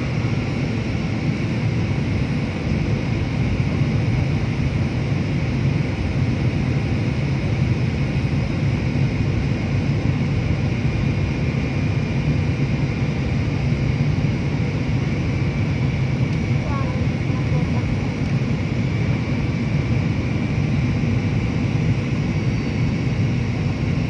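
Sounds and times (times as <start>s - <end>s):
aeroplane cabin drone: 0.0s - 24.0s
faint high whine: 7.3s - 24.0s.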